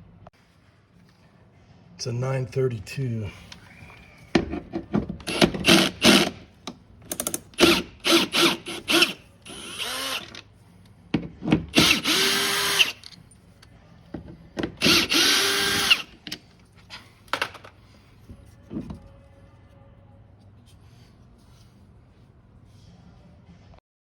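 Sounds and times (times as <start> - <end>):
cordless drill motor blips: 8.1 - 10.3, 11.8 - 13.0.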